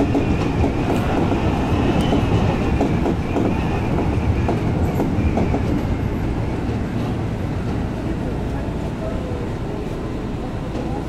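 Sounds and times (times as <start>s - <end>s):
knocks of train wheels: 0.0s - 7.9s
electric train running on rails: 0.0s - 11.0s.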